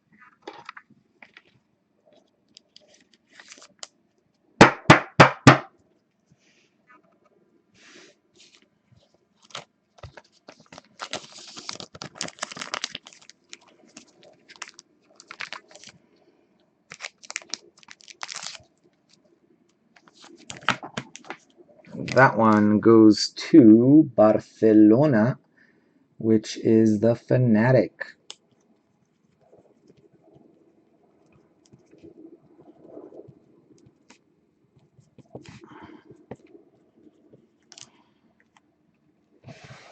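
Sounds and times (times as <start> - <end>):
plastic crinkling: 2.2 - 4.0, 9.3 - 16.2, 16.9 - 19.3, 20.0 - 22.6, 34.8 - 38.1.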